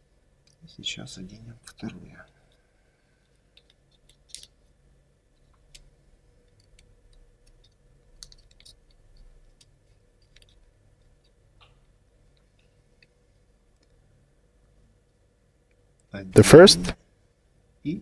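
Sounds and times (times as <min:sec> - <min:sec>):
low room hum: 0:00.0 - 0:18.0
clicks and taps of wooden parts: 0:03.6 - 0:04.6.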